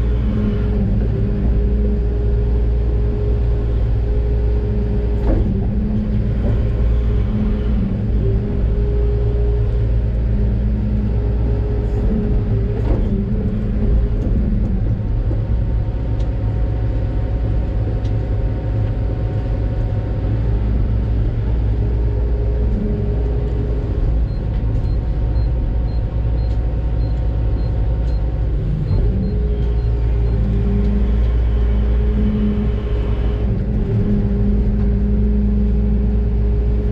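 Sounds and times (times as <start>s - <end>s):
hydraulic whine: 0.0s - 15.4s, 27.0s - 36.7s
excavator engine rumbling: 0.0s - 36.9s.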